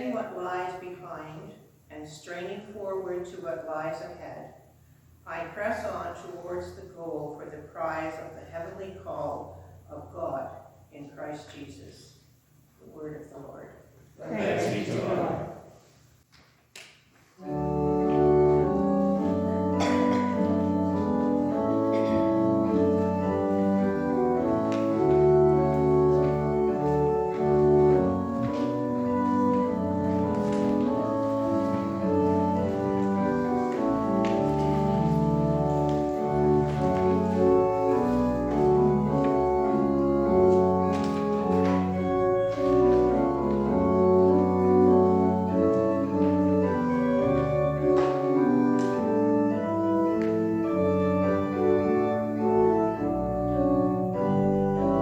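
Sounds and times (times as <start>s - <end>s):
church organ chords: 14.4s - 15.8s, 17.4s - 55.0s.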